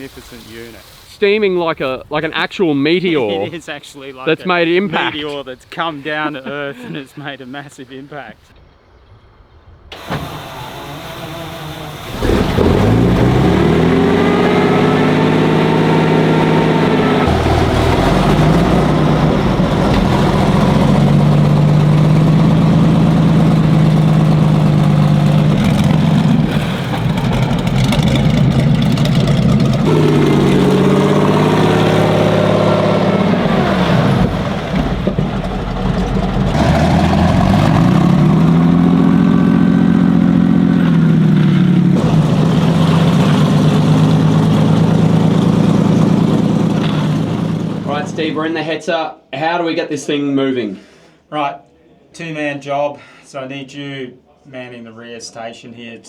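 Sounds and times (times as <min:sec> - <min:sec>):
tank engine revving: 0:09.9 - 0:48.4.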